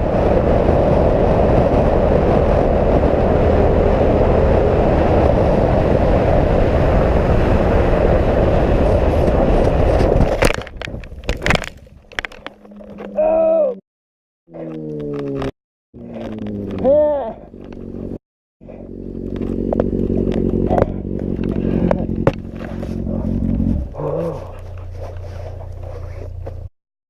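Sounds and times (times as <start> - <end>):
motorcycle engine at speed: 0.0 - 10.5, 16.0 - 26.7
wind noise: 0.0 - 13.8, 19.4 - 26.7
sharp knocks and scraping: 19.2 - 26.7.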